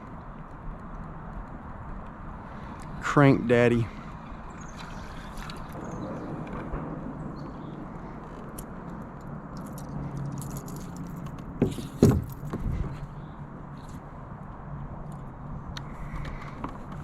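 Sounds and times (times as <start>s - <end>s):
wind: 0.0s - 17.0s
water around kayak: 2.0s - 7.0s
light clicks and rattles: 8.2s - 12.6s
sharp knocks: 11.6s - 12.7s.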